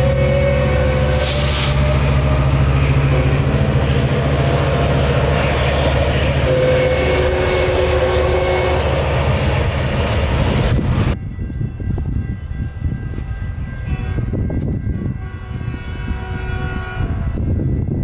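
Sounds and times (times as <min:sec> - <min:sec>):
diesel locomotive engine drone: 0:00.0 - 0:18.0
short hiss: 0:01.2 - 0:01.8.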